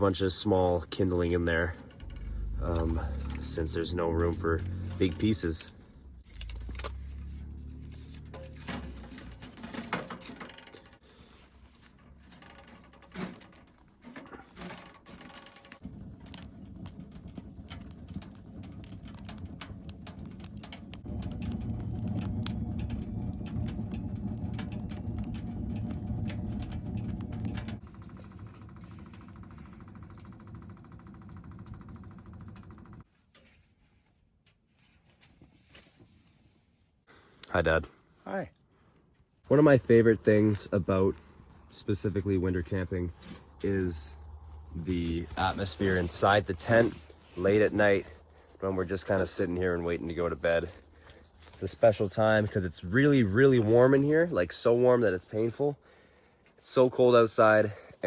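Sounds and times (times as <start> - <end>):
kindling sticks clattering: 1.2 - 10.9.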